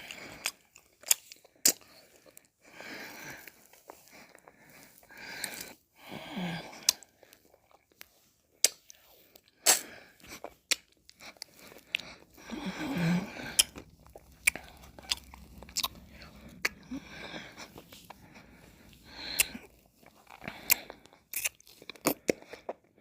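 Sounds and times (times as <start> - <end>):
lip and tongue clicks: 0.1 - 2.1, 13.3 - 17.1, 19.1 - 22.8
wet licking and sucking: 3.0 - 22.8.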